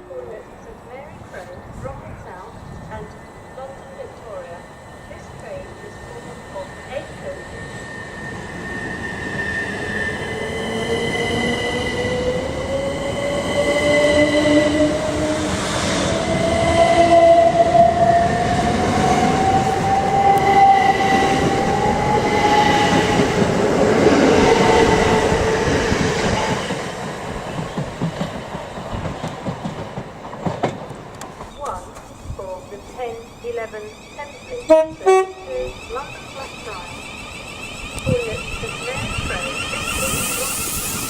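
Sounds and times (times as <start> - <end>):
train wheel rumble: 0.4 - 41.0
high steady squeal: 2.9 - 23.6, 31.5 - 41.0
train motors whining: 31.6 - 41.0.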